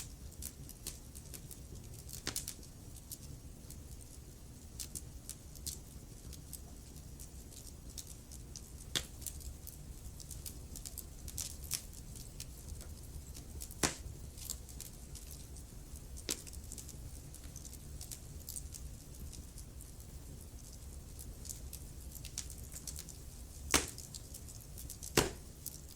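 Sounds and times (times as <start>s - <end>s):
wood fire crackling: 0.0s - 25.9s
loud fire pops: 13.6s - 14.2s, 23.7s - 24.2s, 25.1s - 25.5s.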